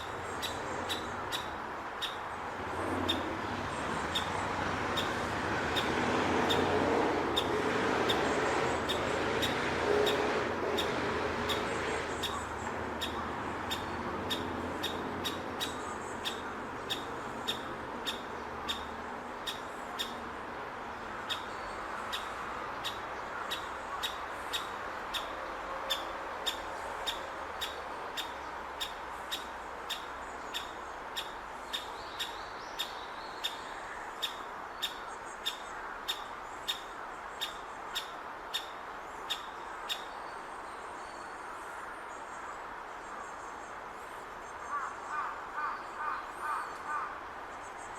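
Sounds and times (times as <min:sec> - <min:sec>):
woodpecker chick calling: 0:00.0 - 0:02.2, 0:04.0 - 0:20.2, 0:21.3 - 0:40.1.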